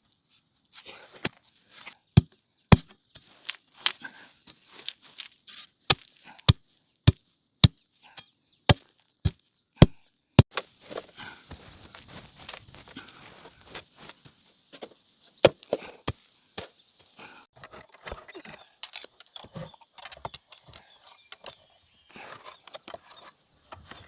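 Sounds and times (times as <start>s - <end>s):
hand tool chopping: 2.2s - 4.0s, 5.9s - 7.8s, 8.7s - 11.1s
soft rustling: 3.2s - 6.2s, 10.5s - 15.0s.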